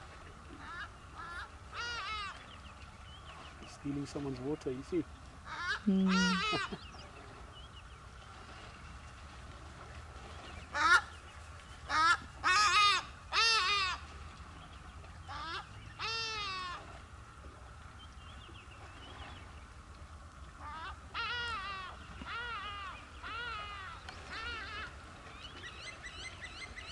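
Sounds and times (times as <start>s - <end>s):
large birds honking: 0.6s - 2.4s, 11.9s - 14.0s, 15.3s - 16.8s.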